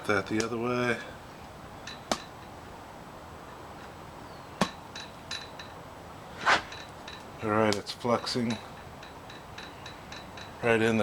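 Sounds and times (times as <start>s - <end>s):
faint glass ticks: 6.8s - 10.7s.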